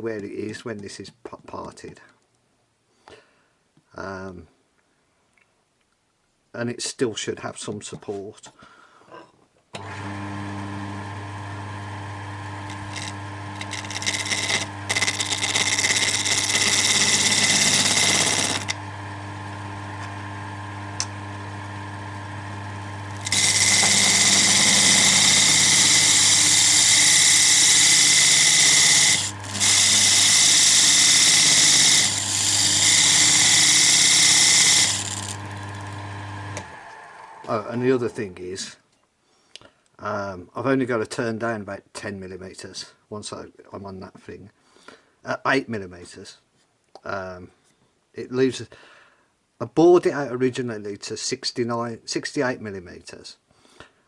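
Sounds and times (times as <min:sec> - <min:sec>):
wood lathe motor humming: 0:09.8 - 0:38.2
tool scraping spinning wood: 0:12.0 - 0:38.7.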